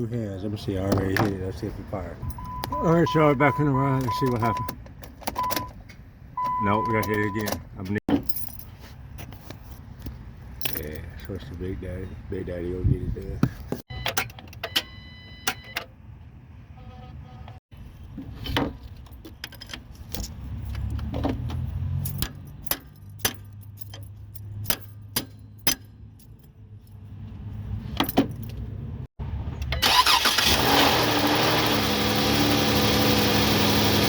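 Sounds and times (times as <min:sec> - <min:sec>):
car engine starting and running: 0:00.6 - 0:08.0, 0:28.5 - 0:34.0.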